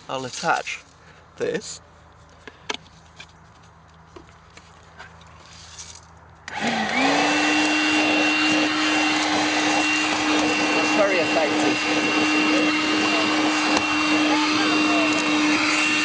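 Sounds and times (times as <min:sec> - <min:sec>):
cordless vacuum cleaner running: 0:06.5 - 0:16.0.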